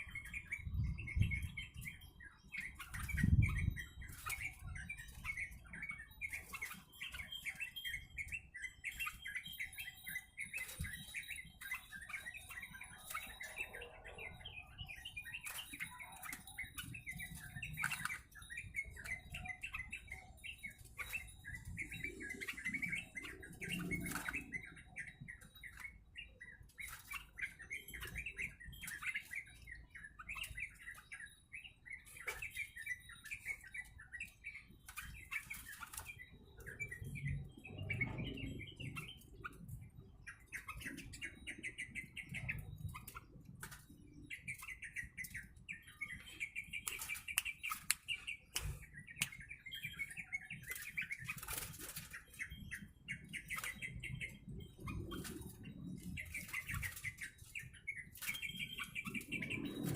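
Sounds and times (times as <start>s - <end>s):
bird chirping: 0.0s - 59.9s
sharp clicks: 46.8s - 49.4s.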